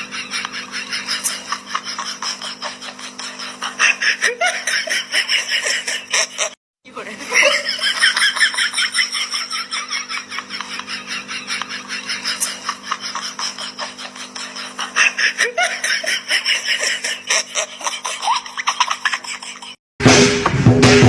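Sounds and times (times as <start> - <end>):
rapid breathy laughing: 0.0 - 19.8.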